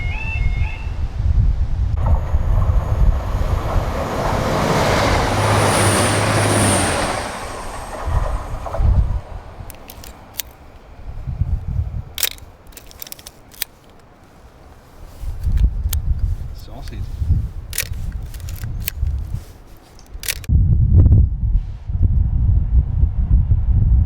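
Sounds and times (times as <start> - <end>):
train wheel squeal: 0.0 - 1.0, 2.0 - 10.3
train passing: 1.9 - 20.5
sharp clicks: 8.6 - 10.9, 12.1 - 14.3, 17.7 - 20.5.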